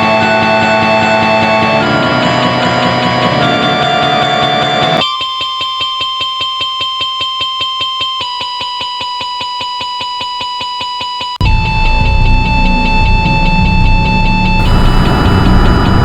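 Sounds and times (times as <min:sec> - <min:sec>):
electronic pulsing tone: 0:14.6 - 0:16.0.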